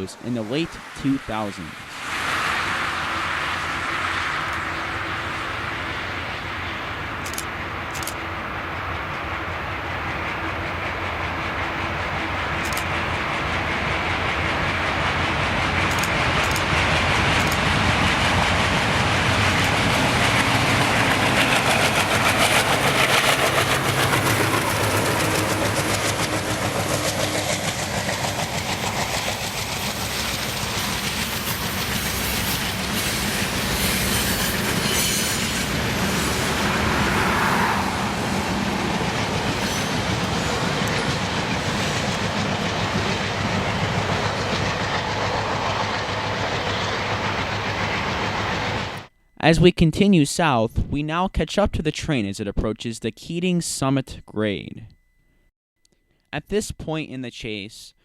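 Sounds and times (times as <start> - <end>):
diesel locomotives working hard: 0.0 - 49.7
wheels clacking over rail joints: 10.0 - 37.0.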